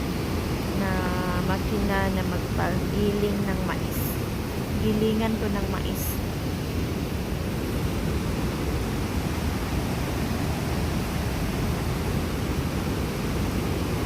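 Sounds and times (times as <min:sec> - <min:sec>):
stream rushing: 0:00.0 - 0:14.0.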